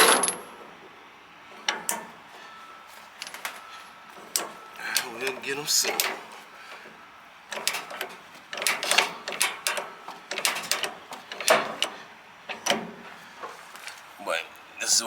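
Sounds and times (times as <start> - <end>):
metal chain clinking: 0.0 - 0.6, 3.2 - 6.4.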